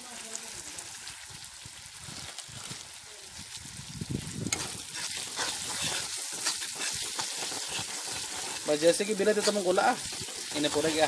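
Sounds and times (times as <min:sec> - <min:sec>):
paste frying and sizzling: 0:00.0 - 0:11.0
spatula scraping pan: 0:04.5 - 0:11.0.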